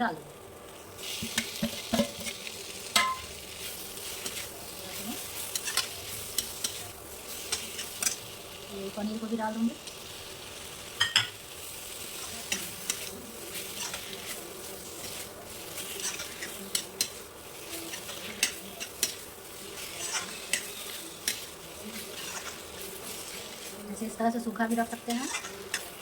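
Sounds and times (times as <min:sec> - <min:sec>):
food sizzling in oil: 0:00.0 - 0:26.0
spoon stirring and scraping pan: 0:00.6 - 0:26.0
spoon knocking against pan: 0:03.0 - 0:03.3, 0:11.0 - 0:11.4.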